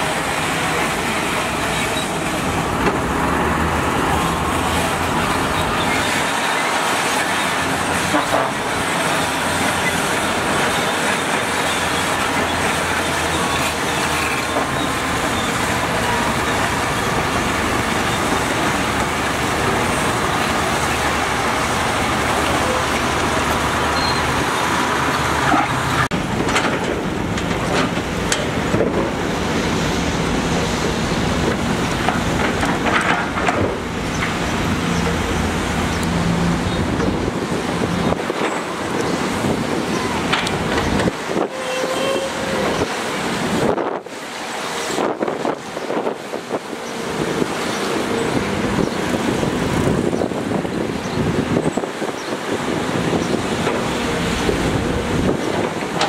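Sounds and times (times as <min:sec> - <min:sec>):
diesel machinery running: 0:00.0 - 0:56.0
clanks and knocks: 0:25.4 - 0:29.2, 0:31.5 - 0:34.4.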